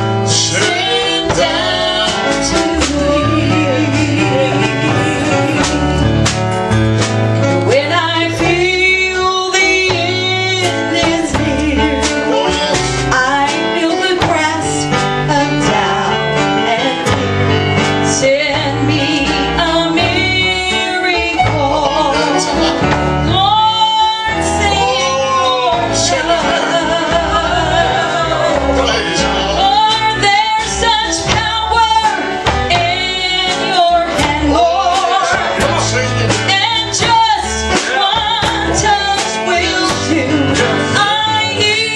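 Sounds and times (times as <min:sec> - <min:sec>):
man and woman singing: 0:00.0 - 0:06.2, 0:07.5 - 0:41.9
country guitar and bass backing: 0:00.0 - 0:41.9.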